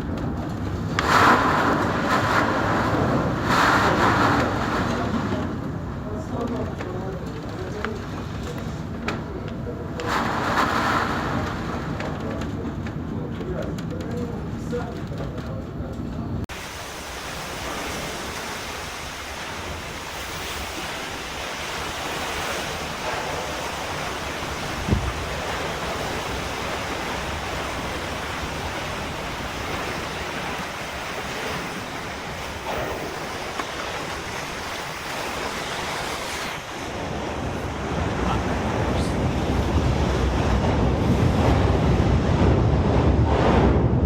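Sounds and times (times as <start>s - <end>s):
rough sea roaring: 0.0s - 7.1s, 7.8s - 13.2s, 16.5s - 44.0s
wind buffeting microphone: 16.3s - 44.0s.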